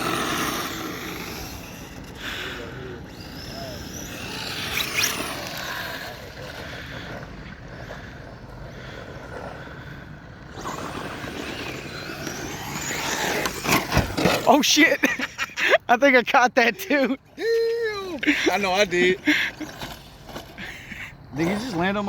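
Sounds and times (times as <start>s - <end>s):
electric motors whining: 0.0s - 15.3s
tyre and ground noise: 0.0s - 22.0s.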